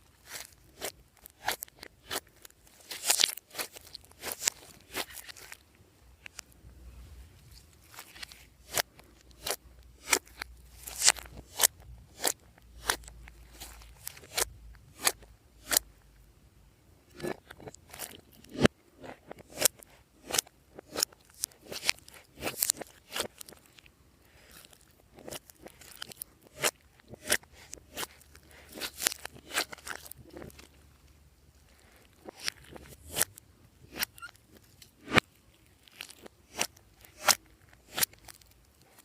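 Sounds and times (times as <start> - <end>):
slime squished by hand: 17.2 - 30.7.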